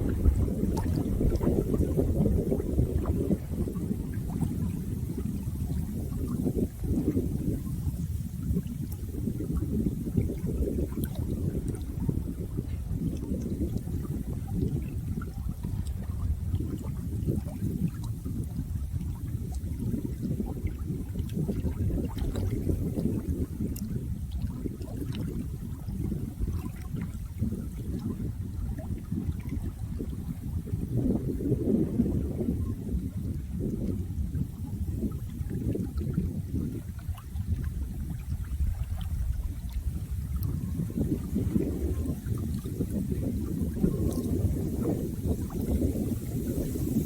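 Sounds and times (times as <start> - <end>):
running water rushing: 0.0 - 23.8, 32.2 - 47.0
water splashes and drips: 0.0 - 31.2, 32.5 - 47.0
drip-like ticks: 40.4 - 40.6.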